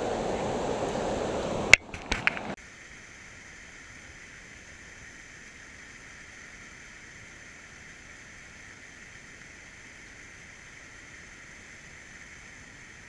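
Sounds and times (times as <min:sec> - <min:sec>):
waterfall rushing: 0:00.0 - 0:02.6.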